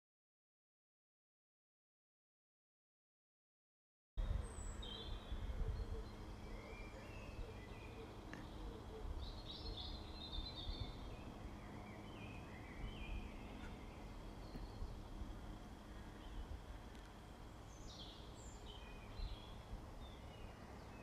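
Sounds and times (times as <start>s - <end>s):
bird calls and chirps: 4.2s - 21.0s
steady low rumble: 4.2s - 21.0s.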